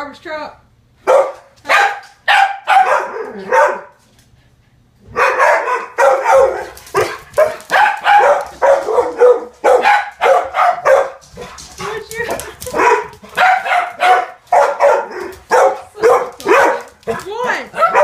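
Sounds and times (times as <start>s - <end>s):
dogs barking loudly: 1.0s - 4.0s, 5.0s - 18.0s.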